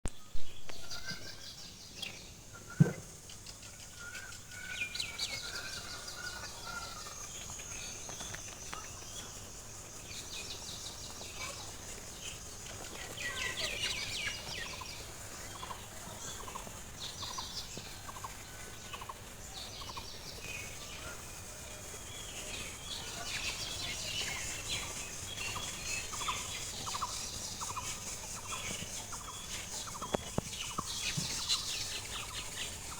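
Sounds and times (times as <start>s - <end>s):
birds chirping: 0.2s - 32.9s.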